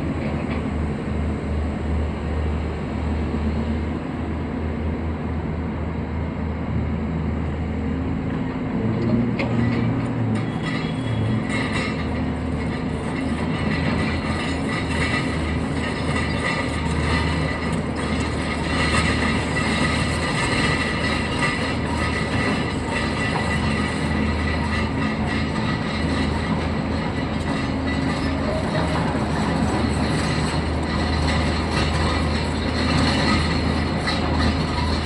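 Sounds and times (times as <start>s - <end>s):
machinery whirring: 10.2s - 35.0s.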